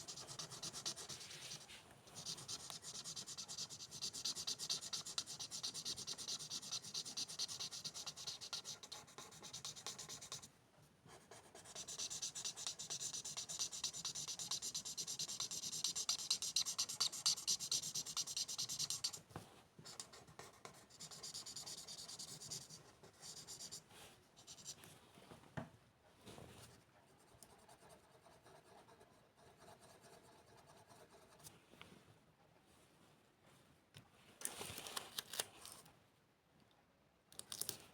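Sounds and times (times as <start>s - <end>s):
pen scribbling on paper: 0.0s - 1.6s, 2.2s - 10.5s, 11.3s - 19.2s, 20.0s - 23.8s
paper rustling: 34.4s - 35.9s.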